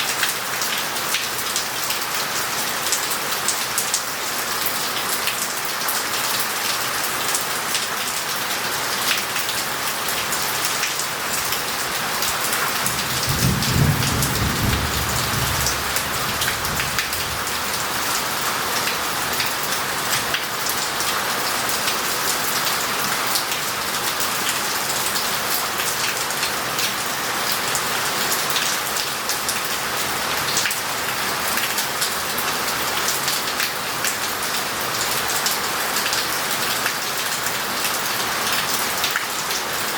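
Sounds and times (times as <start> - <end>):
heavy rain on roof tiles: 0.0 - 39.9
low rumble of thunder: 12.8 - 18.0.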